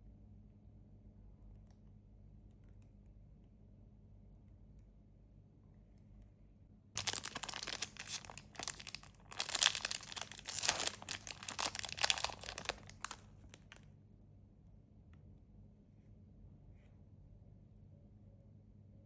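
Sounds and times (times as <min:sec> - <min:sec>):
plastic wrapper crinkling and tearing: 0:07.0 - 0:13.8.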